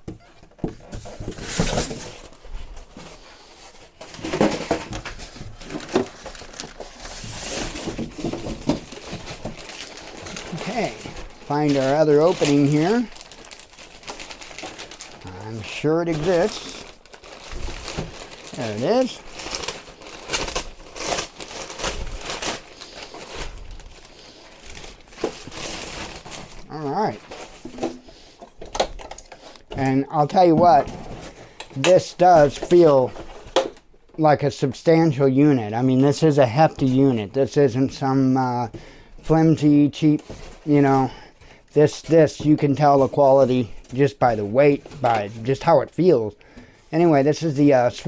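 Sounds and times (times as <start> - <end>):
cardboard rustling and scraping: 0.0 - 33.6
cardboard box rustling and scraping: 0.4 - 13.6.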